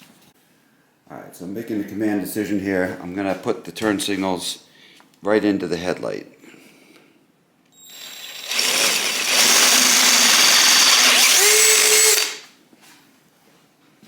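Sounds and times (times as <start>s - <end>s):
electric drill drilling metal: 7.8s - 12.4s.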